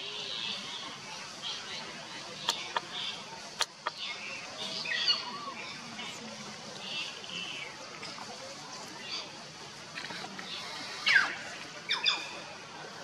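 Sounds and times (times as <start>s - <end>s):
birds chirping: 0.3s - 7.8s.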